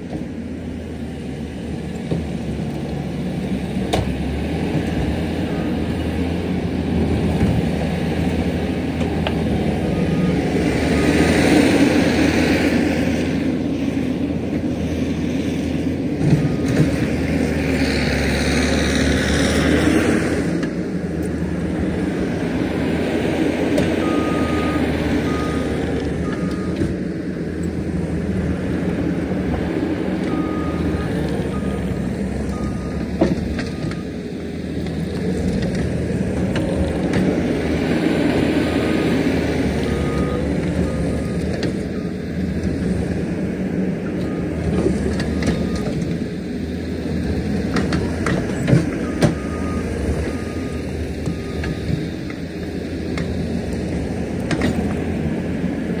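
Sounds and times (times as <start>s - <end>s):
heavy machinery diesel engines: 0.0s - 56.0s
reversing alarm beeping: 24.0s - 26.9s, 30.3s - 34.2s, 39.8s - 42.2s, 45.4s - 46.0s, 49.0s - 52.1s.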